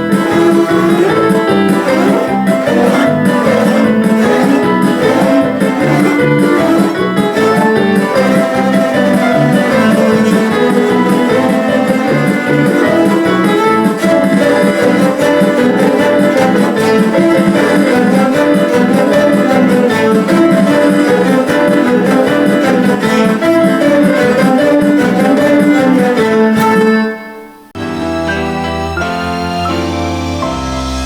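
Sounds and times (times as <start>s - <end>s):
cellos playing bowed notes: 0.0s - 27.4s.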